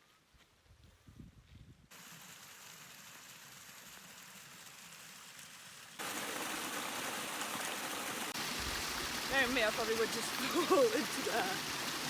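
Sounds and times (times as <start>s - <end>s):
steady hiss of water: 1.9s - 12.0s.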